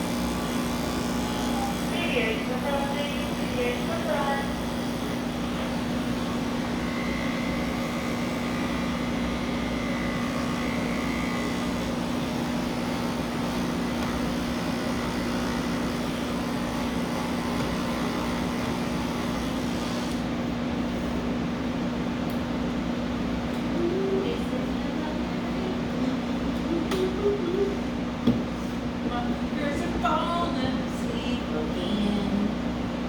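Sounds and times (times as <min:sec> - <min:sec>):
electric clippers humming: 0:00.0 - 0:21.2.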